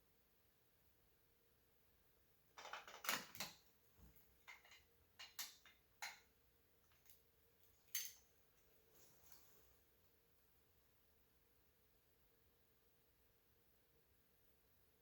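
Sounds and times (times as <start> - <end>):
small plastic parts clicking and rattling: 2.6 - 3.6, 4.4 - 7.2.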